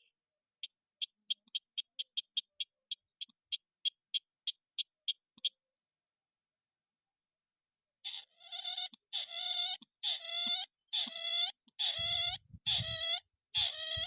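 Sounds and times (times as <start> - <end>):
crake calling: 8.0 - 14.0.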